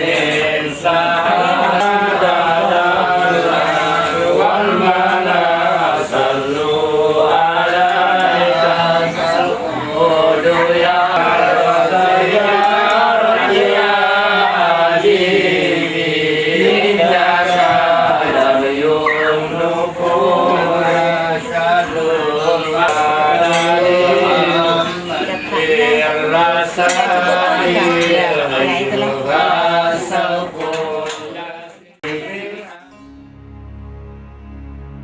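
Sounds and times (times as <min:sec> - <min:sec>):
voices chanting together: 0:00.0 - 0:33.0.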